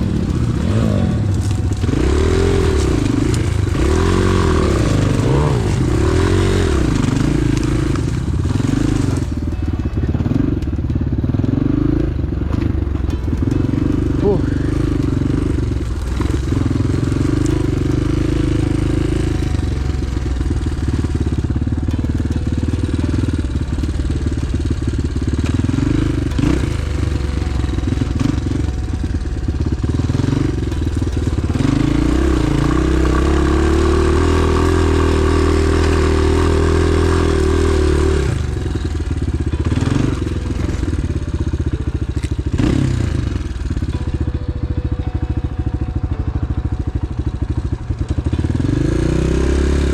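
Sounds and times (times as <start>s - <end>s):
knocks from bike on rough ground: 0.0s - 44.3s
motorbike engine revving: 0.0s - 49.9s.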